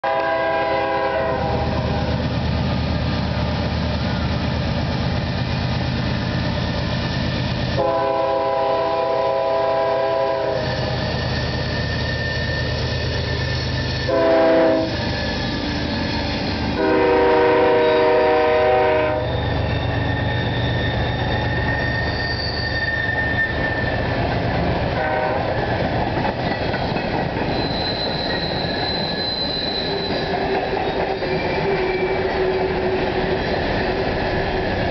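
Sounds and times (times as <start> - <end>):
locomotive air horn blasts: 0.0 - 2.2, 7.8 - 10.8, 14.1 - 15.0, 16.7 - 19.3, 25.0 - 25.6
diesel locomotive engine rumbling: 0.0 - 34.9
faint wheel squeal: 10.6 - 14.1, 14.8 - 16.7, 19.2 - 24.2, 27.4 - 32.5
rail clatter: 23.0 - 34.9.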